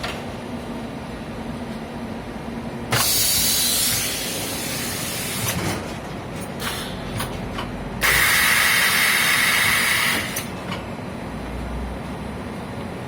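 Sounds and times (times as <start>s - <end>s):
factory machinery humming: 0.0s - 13.0s
air hissing: 3.0s - 5.6s, 8.0s - 10.5s.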